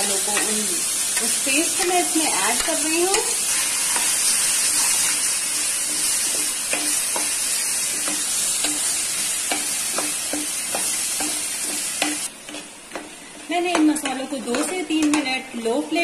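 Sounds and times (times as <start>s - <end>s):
paste sizzling in hot oil: 0.0s - 14.3s.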